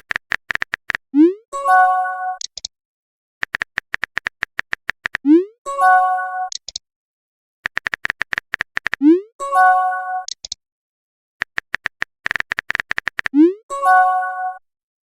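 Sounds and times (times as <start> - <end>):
keyboard tap clicks: 0.0 - 1.0, 3.4 - 5.2, 7.7 - 9.0, 11.4 - 13.4.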